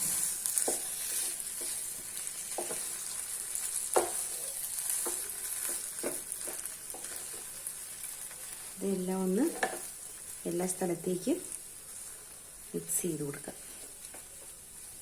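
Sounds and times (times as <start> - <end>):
spoon scraping a pan: 0.0 - 7.5.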